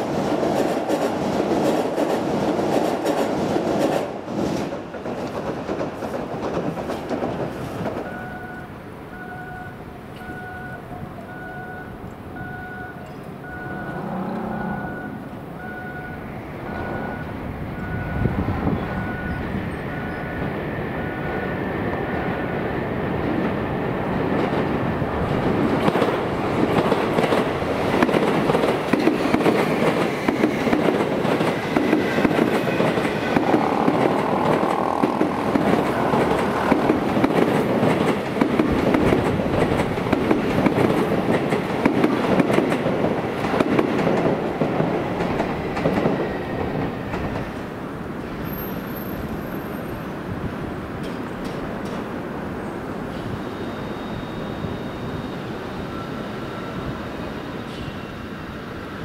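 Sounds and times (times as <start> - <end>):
electric train rumbling past: 0.0 - 59.0
wheels clicking over rail joints: 24.3 - 47.7.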